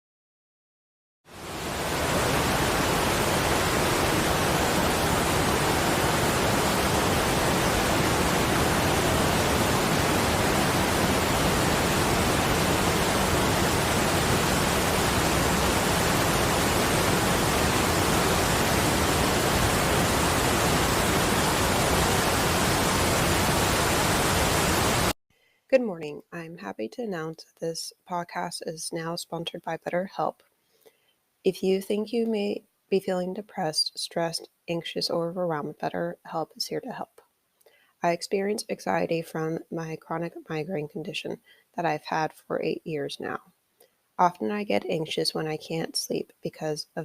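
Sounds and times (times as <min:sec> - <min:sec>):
steady rushing noise: 0:01.3 - 0:25.2.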